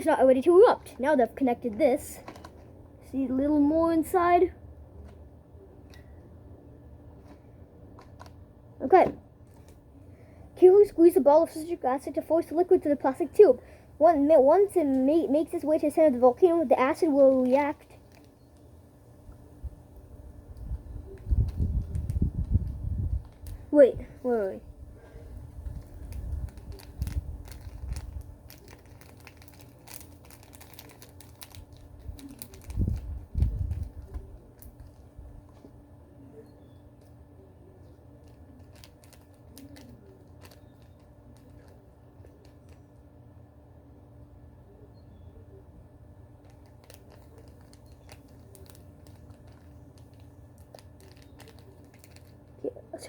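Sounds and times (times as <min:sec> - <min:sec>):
plastic parts clicking and crinkling: 0:01.7 - 0:02.8, 0:07.2 - 0:08.4, 0:15.7 - 0:18.7, 0:25.6 - 0:35.8, 0:37.8 - 0:43.0, 0:46.4 - 0:52.6.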